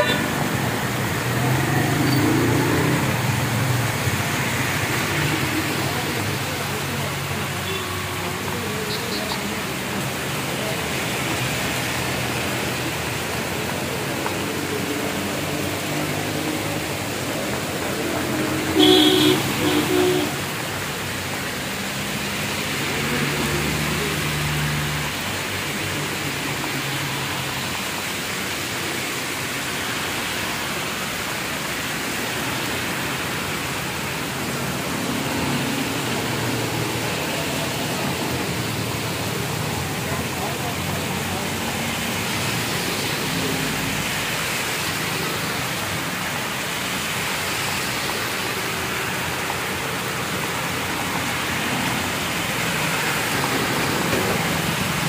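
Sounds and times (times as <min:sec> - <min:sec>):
cars driving through water: 0:00.0 - 0:55.0
heavy rain on road: 0:00.0 - 0:55.0
vehicle horn honking: 0:18.8 - 0:20.4.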